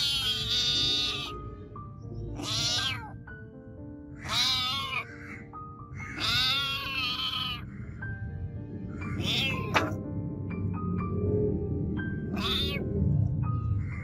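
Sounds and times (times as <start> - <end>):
cat meowing: 0.0 - 1.5, 2.3 - 3.3, 4.1 - 7.7, 9.0 - 10.0, 12.3 - 13.0.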